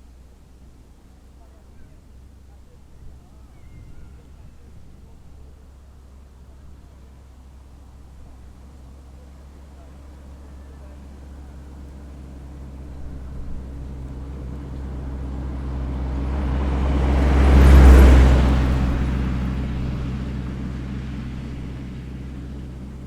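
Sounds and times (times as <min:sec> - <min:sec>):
vehicle driving past: 0:09.8 - 0:23.0.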